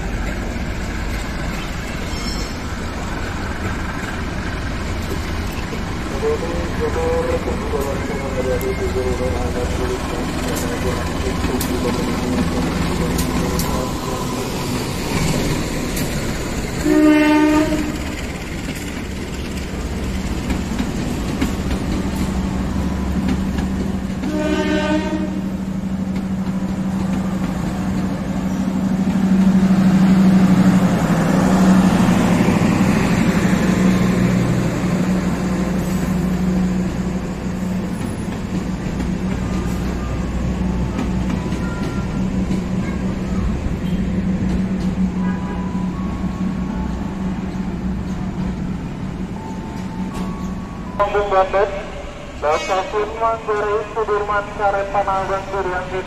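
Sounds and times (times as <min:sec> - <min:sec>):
locomotive engine drone: 0:00.0 - 0:56.0
train wheels clacking on track: 0:09.5 - 0:16.8, 0:17.5 - 0:25.0
train horn blasts: 0:16.8 - 0:18.0, 0:24.2 - 0:25.6.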